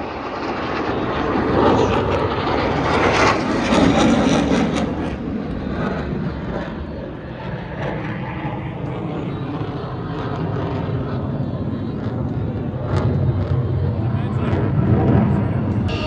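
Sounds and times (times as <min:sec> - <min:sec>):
fighter jets roaring: 0:13.0 - 0:16.0.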